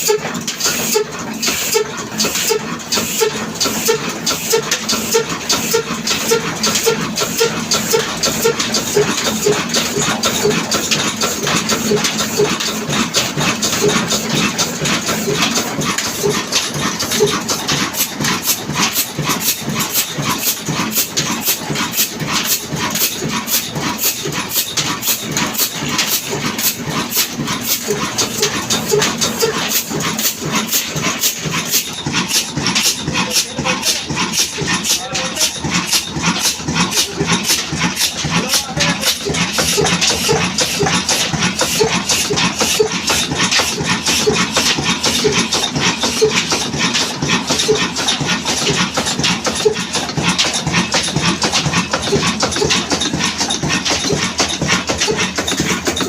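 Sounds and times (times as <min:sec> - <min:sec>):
diesel engine knocking: 0:00.0 - 0:56.0.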